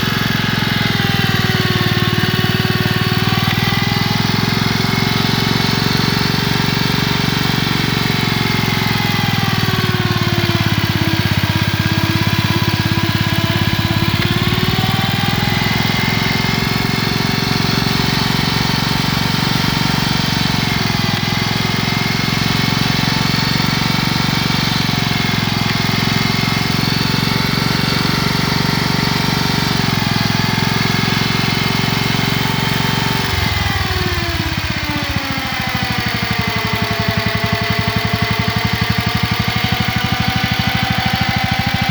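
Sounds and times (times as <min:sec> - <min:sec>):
tractor engine running: 0:00.0 - 0:41.9.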